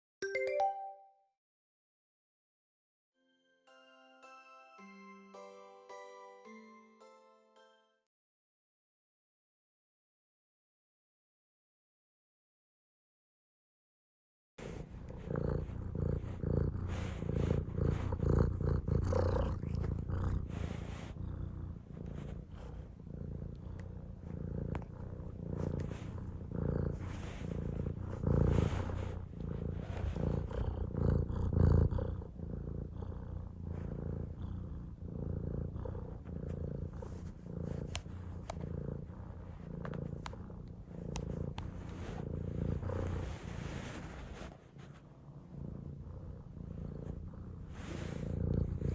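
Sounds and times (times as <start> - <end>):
cat purring: 14.6 - 48.9.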